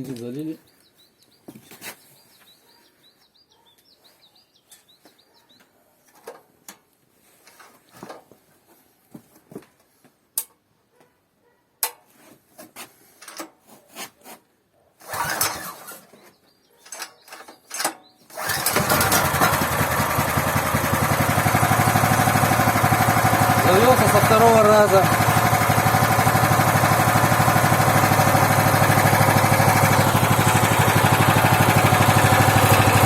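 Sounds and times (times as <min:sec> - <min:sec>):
birds chirping: 0:00.0 - 0:06.2, 0:15.8 - 0:18.9, 0:23.2 - 0:25.8, 0:26.6 - 0:33.0
engine cranking without starting: 0:15.0 - 0:16.1, 0:17.0 - 0:33.0.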